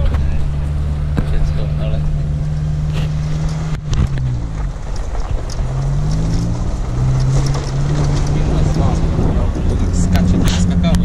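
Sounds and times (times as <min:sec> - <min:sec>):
off-road vehicle engine accelerating: 0:00.0 - 0:11.0.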